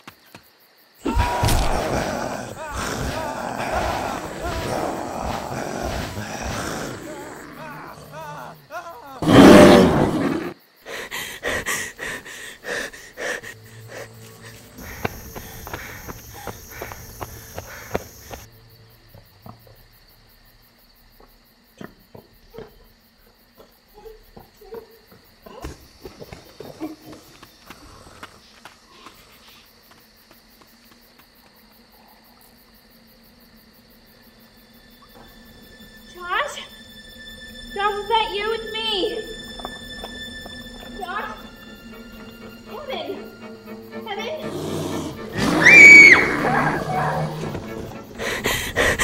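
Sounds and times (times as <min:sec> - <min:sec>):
crickets chirping: 0:00.0 - 0:49.0
monster roar: 0:01.0 - 0:10.6
short wavering cries: 0:45.1 - 0:47.5.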